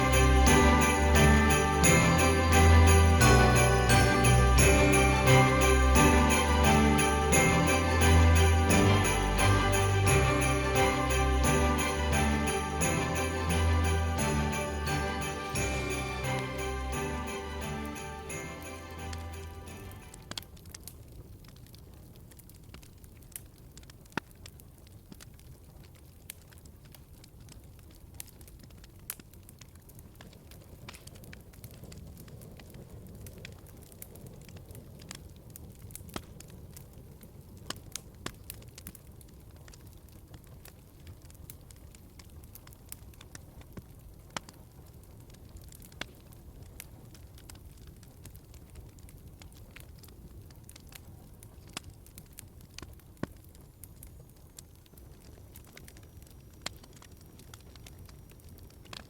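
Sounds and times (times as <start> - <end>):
fire pops and crackles: 16.3 - 59.0
rumble of flames: 19.9 - 59.0.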